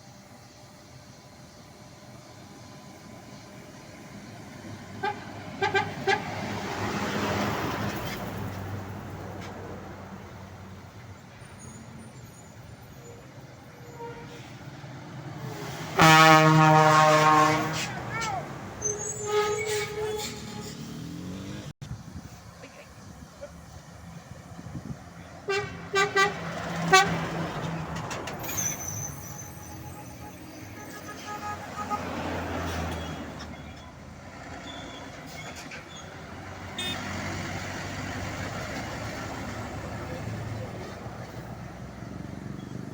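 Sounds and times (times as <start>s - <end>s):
faint road noise: 0.0s - 42.9s
truck engine humming: 0.0s - 42.9s.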